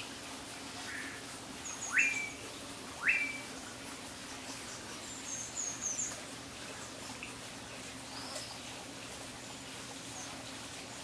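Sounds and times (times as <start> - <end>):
faint high bird chirps: 1.7 - 2.4, 3.0 - 3.5.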